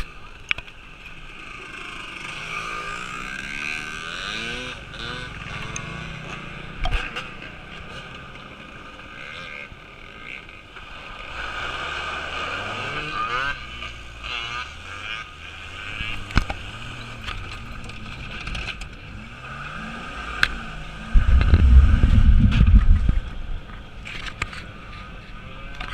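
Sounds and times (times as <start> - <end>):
off-road vehicle engines revving: 0.0 - 25.9
loud low rumble: 20.9 - 24.0.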